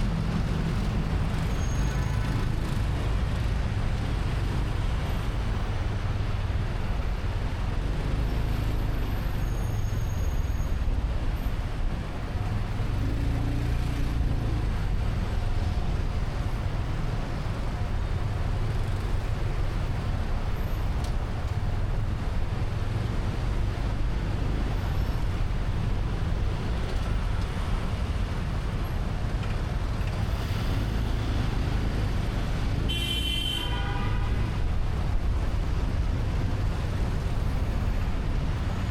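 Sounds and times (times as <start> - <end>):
motorcycle engine and road rumble: 0.0 - 38.9
vehicle horn: 32.9 - 34.6.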